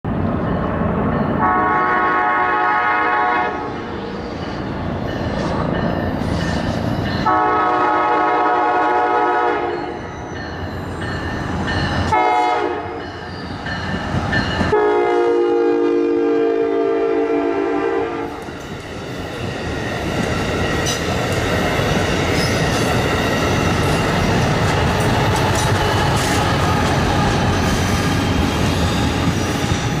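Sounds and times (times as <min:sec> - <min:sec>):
train passing rumble: 0:00.1 - 0:30.0
train air horn blasts: 0:01.4 - 0:03.8, 0:07.2 - 0:09.9, 0:12.1 - 0:13.0, 0:14.7 - 0:18.4
wheels clacking on rails: 0:03.6 - 0:09.1, 0:09.7 - 0:15.2, 0:18.2 - 0:30.0.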